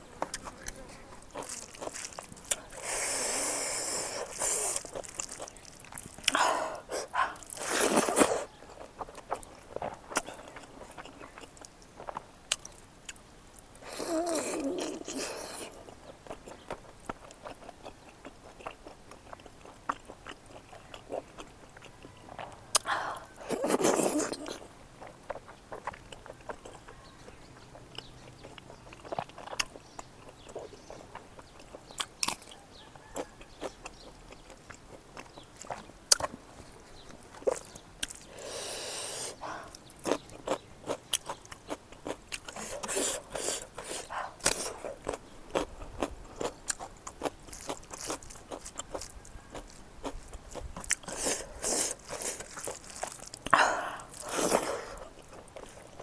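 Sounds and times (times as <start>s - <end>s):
mouth chewing and smacking: 0.1s - 56.0s
crunching bites: 0.2s - 6.4s, 39.4s - 56.0s.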